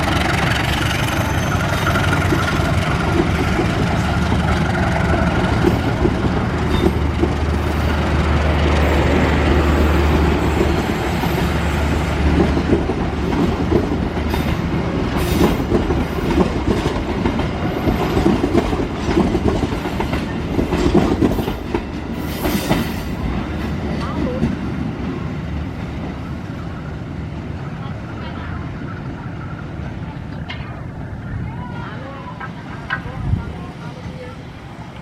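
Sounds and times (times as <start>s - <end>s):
locomotive engine drone: 0.0s - 15.2s
wheels clattering over rail joints: 0.0s - 26.2s.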